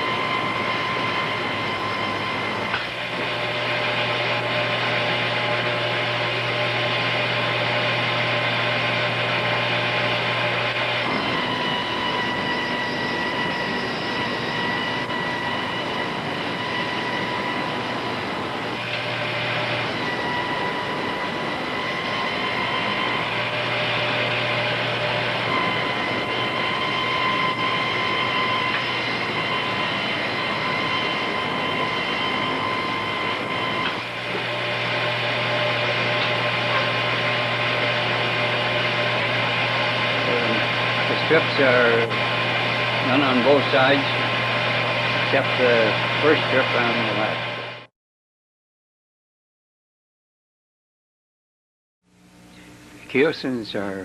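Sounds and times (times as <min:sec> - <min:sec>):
grooving machine whining: 0:00.0 - 0:47.9
low electrical hum: 0:52.1 - 0:54.0.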